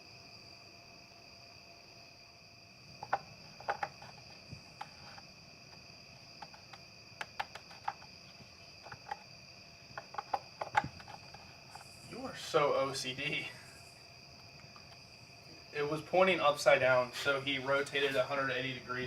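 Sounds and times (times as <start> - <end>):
crickets chirping: 0.0 - 19.0
plastic cap clicking and knocking: 3.0 - 4.2, 6.4 - 8.1, 8.8 - 9.2, 10.0 - 11.4.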